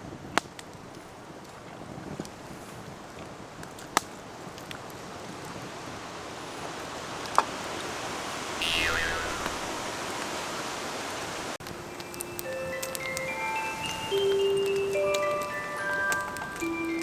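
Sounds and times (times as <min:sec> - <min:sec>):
campfire burning: 0:00.0 - 0:17.0
falling whistle: 0:08.6 - 0:09.7
firewood popping: 0:08.6 - 0:09.9, 0:11.6 - 0:17.0.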